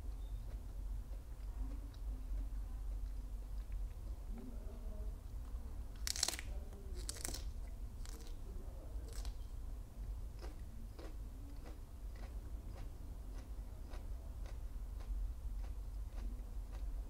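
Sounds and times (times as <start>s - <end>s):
closed-mouth chewing: 0.0s - 8.4s, 9.0s - 9.5s, 10.3s - 17.0s
crunching bites into petals: 6.0s - 8.4s, 9.1s - 9.4s.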